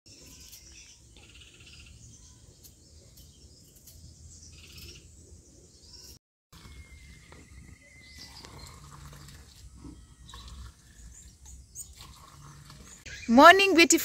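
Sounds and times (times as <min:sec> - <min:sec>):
faint bird chirps and trills: 0:00.1 - 0:13.6.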